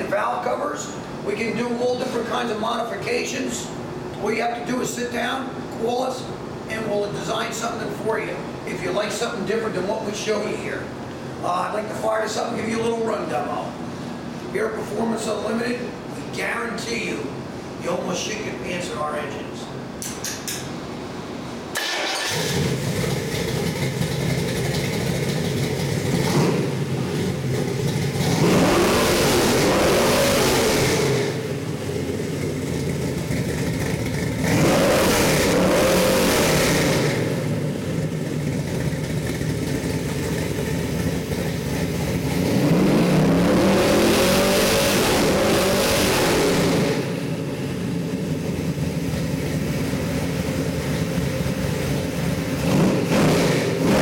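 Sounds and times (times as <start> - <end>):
engine idling and revving: 21.7 - 54.0.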